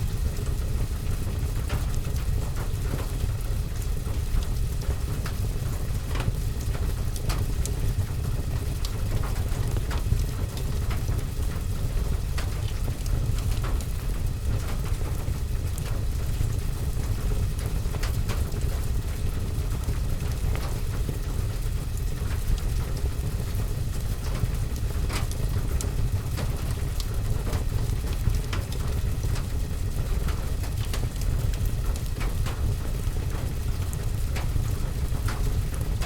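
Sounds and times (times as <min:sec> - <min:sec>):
steady rain: 0:00.0 - 0:36.0
wood fire crackling: 0:00.0 - 0:36.0.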